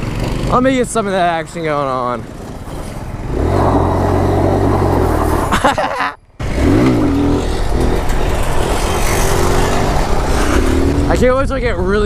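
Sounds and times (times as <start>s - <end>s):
mini bike engine revving: 0.0s - 1.0s, 2.2s - 5.7s, 6.4s - 11.2s.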